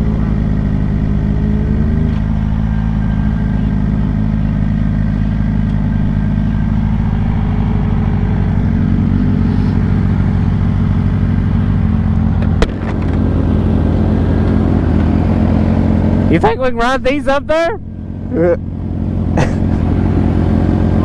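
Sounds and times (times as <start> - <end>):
motorcycle engine idling: 0.0 - 16.4.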